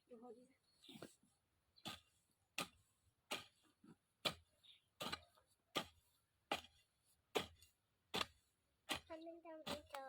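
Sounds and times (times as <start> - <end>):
tool scraping soil: 0.8 - 10.0
hand tool chopping into soil: 2.6 - 3.6, 4.2 - 10.0.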